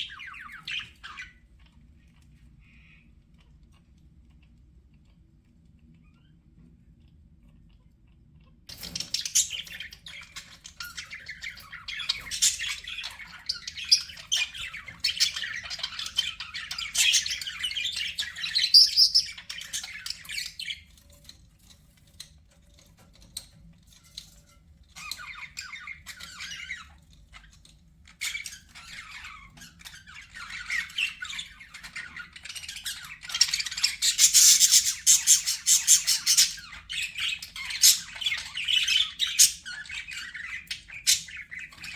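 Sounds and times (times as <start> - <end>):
budgerigars chattering: 0.0 - 1.5, 8.7 - 20.8, 28.1 - 41.9.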